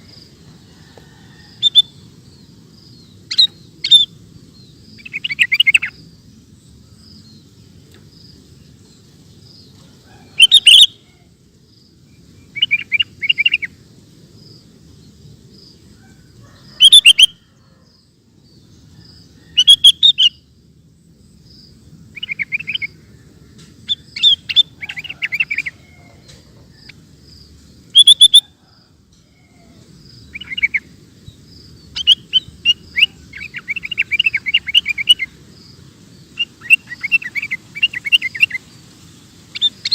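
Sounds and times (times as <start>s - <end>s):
bird singing bubbly chattering notes: 36.3s - 38.6s.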